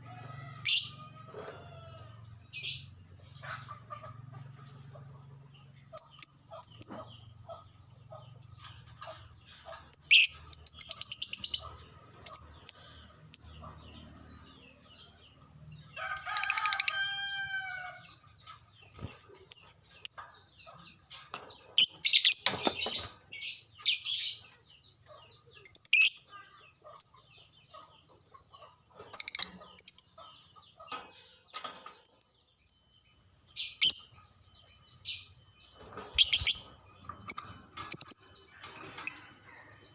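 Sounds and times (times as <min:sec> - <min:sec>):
lovebirds chirping shrilly: 0:29.1 - 0:39.6.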